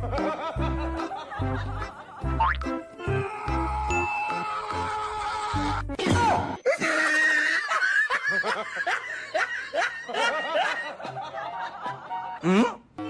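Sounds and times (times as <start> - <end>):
music: 0.0 - 6.6, 11.1 - 13.0.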